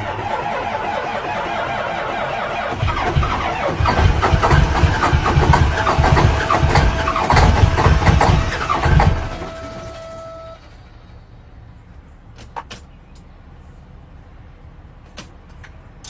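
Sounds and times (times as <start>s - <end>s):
vehicle engine running: 0.0s - 12.3s.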